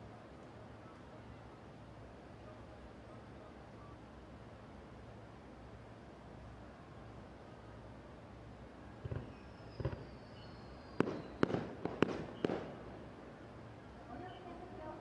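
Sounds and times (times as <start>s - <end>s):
fireworks booms: 9.0s - 10.2s, 11.0s - 13.1s
fireworks sharp cracks: 9.0s - 10.2s, 11.0s - 13.2s.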